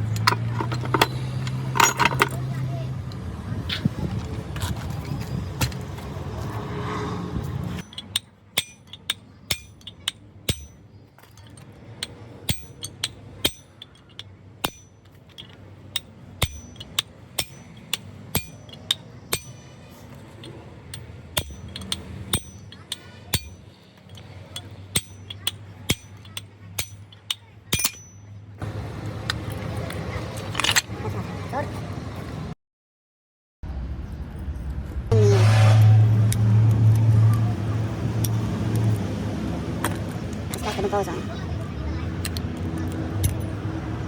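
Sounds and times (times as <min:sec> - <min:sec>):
hammer striking metal: 0:07.8 - 0:10.9, 0:12.0 - 0:19.8, 0:20.4 - 0:28.4.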